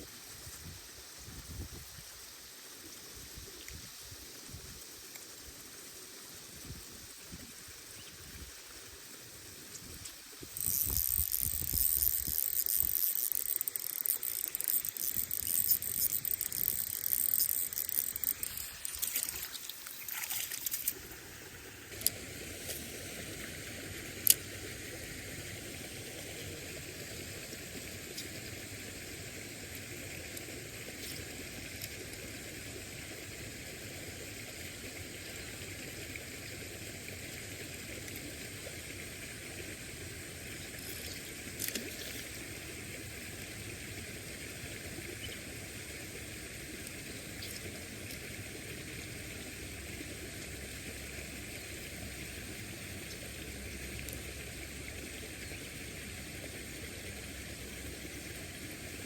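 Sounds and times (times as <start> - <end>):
running water hissing: 0.0 - 59.0
faint clicks: 9.7 - 21.0.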